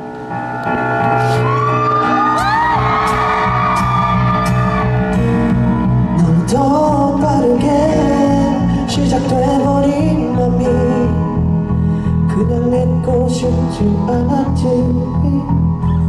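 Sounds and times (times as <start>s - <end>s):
live pop ballad: 0.0s - 16.0s
audience screaming: 0.7s - 6.6s.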